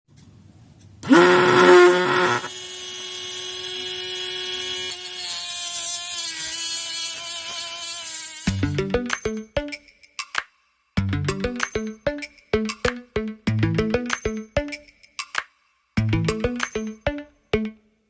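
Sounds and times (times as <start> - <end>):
small motor whining: 1.0 - 8.7.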